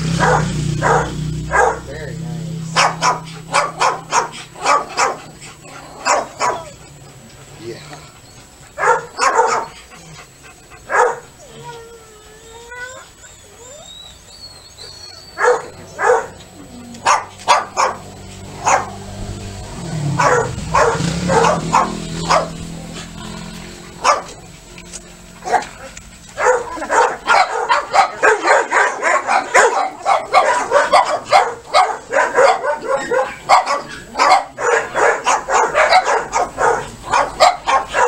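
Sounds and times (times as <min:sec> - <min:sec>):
dog barking: 0:00.1 - 0:01.9, 0:02.7 - 0:05.3, 0:05.9 - 0:06.7, 0:08.8 - 0:09.8, 0:10.9 - 0:11.4, 0:15.4 - 0:16.4, 0:17.0 - 0:19.1, 0:20.1 - 0:23.0, 0:24.0 - 0:24.4, 0:25.4 - 0:25.8, 0:26.4 - 0:38.0.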